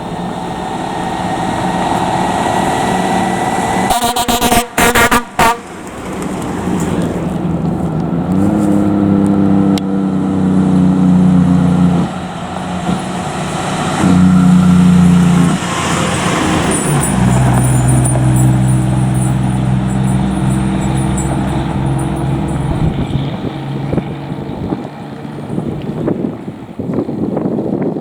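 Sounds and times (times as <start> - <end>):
vehicle noise: 0.0 - 28.0
fire truck air horn blasts: 3.4 - 5.9, 12.9 - 24.0.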